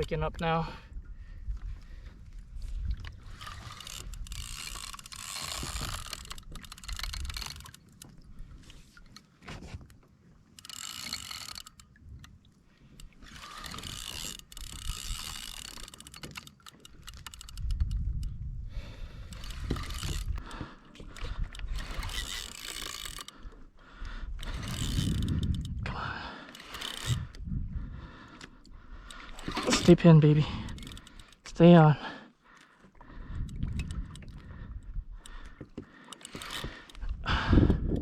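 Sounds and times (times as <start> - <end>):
fishing reel gears whirring: 0.0 - 0.7, 2.0 - 9.3, 10.4 - 38.0.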